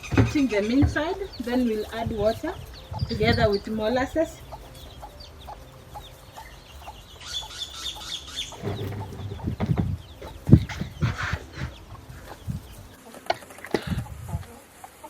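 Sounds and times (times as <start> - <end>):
dull thumps and rustling: 0.0 - 2.3, 8.6 - 12.7
chickens clucking: 0.0 - 15.0.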